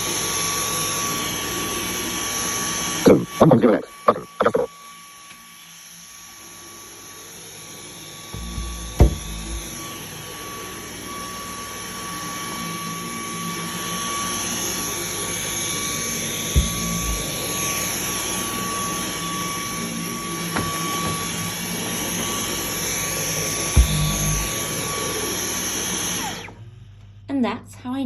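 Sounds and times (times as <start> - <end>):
single knocks: 8.4 - 9.8, 16.6 - 17.4, 23.8 - 24.6
stick vacuum running: 8.4 - 9.9, 16.4 - 19.0, 23.3 - 26.6.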